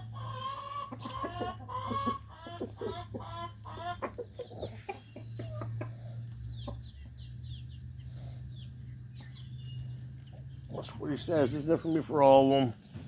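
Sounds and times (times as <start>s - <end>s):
chickens clucking: 0.0s - 13.0s
chicks peeping: 0.0s - 13.0s.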